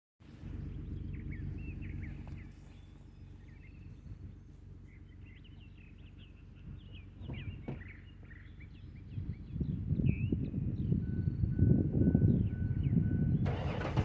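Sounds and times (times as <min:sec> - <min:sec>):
car engine running: 0:00.3 - 0:09.6
birds chirping: 0:00.3 - 0:14.0.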